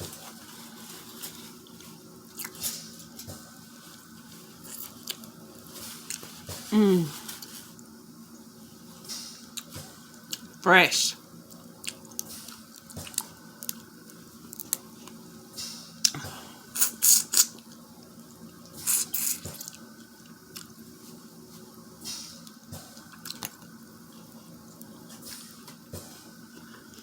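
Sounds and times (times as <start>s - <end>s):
wet slurping and sucking: 16.8s - 17.5s, 18.8s - 19.5s.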